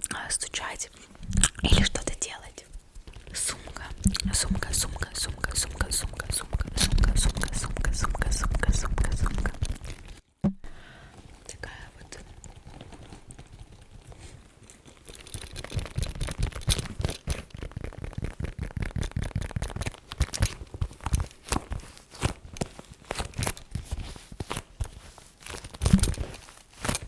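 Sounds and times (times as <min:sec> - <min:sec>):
tapping and scratching on object: 0:03.0 - 0:10.2, 0:12.1 - 0:23.8.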